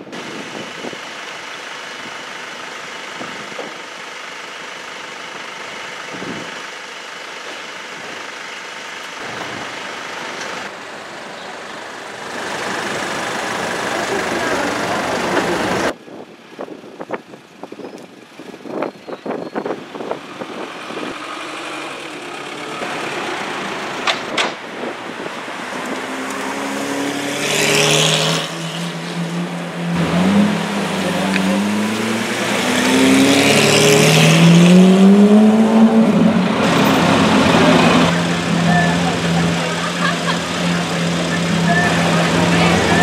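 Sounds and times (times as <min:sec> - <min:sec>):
exhaust rushes: 0:07.7 - 0:16.0, 0:18.3 - 0:43.0
sports car engine revving: 0:25.2 - 0:43.0.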